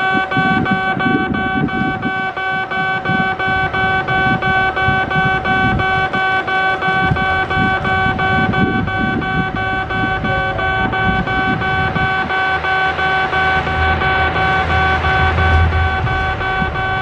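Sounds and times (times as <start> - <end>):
passing train rumble: 9.5 - 17.0
level crossing bell ringing: 9.9 - 17.0.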